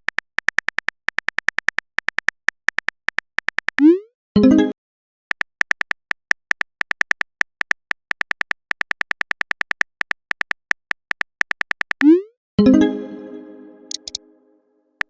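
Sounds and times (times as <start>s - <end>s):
message chime: 4.4s - 4.8s, 12.0s - 14.4s
phone keyboard typing clicks: 5.3s - 12.1s, 13.9s - 14.2s.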